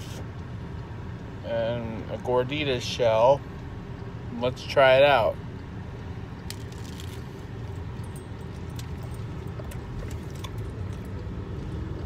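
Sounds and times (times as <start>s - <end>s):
biting and chewing crunchy food: 6.4s - 12.0s
car cabin rumble: 7.4s - 12.0s.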